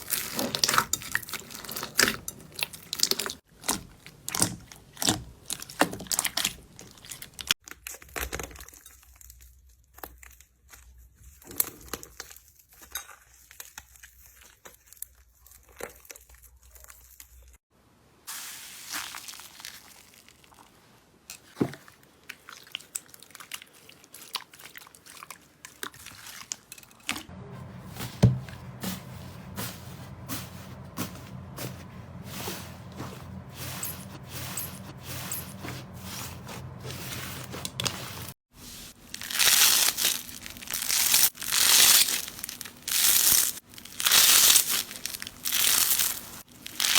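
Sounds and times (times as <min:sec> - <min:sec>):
slime squishing: 0:00.0 - 0:08.8, 0:21.8 - 0:26.7, 0:27.3 - 0:46.9.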